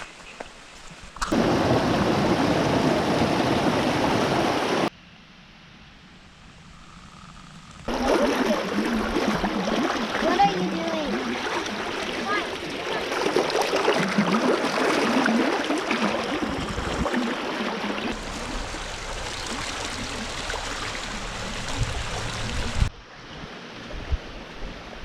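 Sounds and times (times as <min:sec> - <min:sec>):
brook running over rocks: 0:07.9 - 0:22.9.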